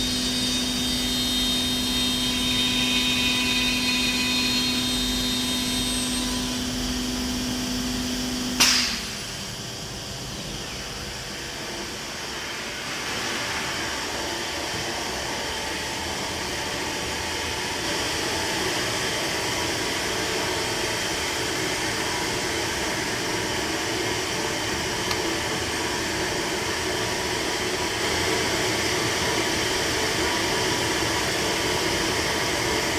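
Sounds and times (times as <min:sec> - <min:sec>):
machine pitched hum: 0:00.0 - 0:32.9
sharp click: 0:08.6 - 0:09.1.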